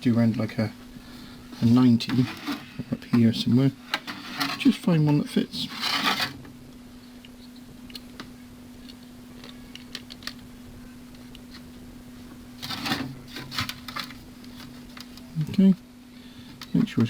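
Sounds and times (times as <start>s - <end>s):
low electrical hum: 0.0s - 17.0s
rustling and clattering: 0.8s - 6.6s, 11.1s - 15.6s.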